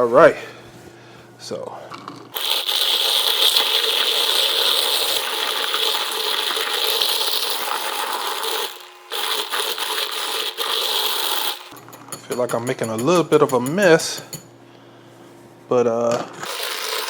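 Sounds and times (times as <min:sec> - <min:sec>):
milk frother whirring: 0:02.3 - 0:11.8, 0:16.4 - 0:17.0.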